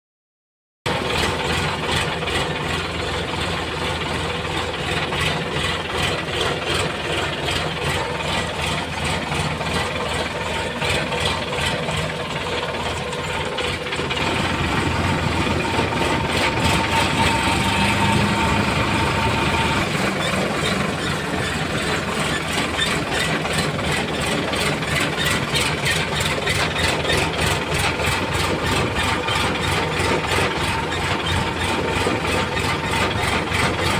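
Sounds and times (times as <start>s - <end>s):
tractor diesel engine running: 0.9s - 33.9s.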